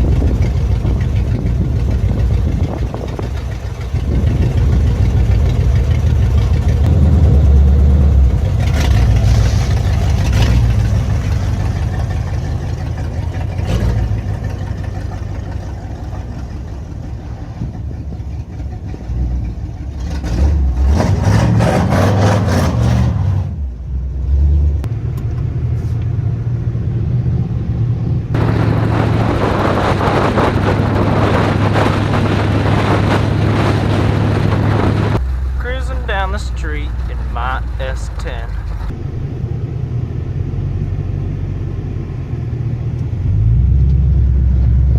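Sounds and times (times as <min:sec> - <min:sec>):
truck engine revving: 0:00.0 - 0:44.9
loud rushing noise: 0:28.2 - 0:35.6.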